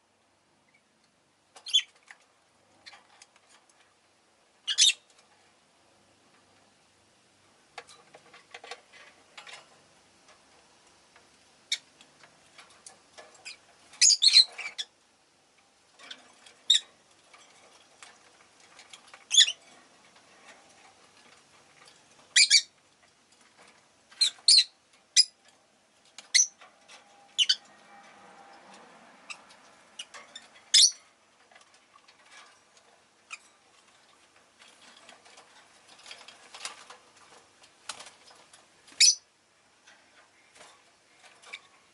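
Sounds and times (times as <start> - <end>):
lovebirds chirping and squawking: 1.6 - 2.0, 4.7 - 5.1, 13.4 - 15.0, 16.0 - 17.0, 19.2 - 19.7, 22.3 - 22.8, 24.1 - 25.4, 26.2 - 27.8, 29.2 - 31.1, 38.9 - 39.3.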